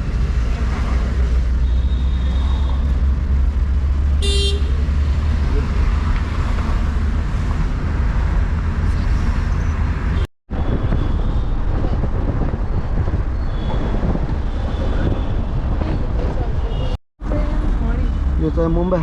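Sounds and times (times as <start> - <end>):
road noise inside moving car: 0.0 - 10.3.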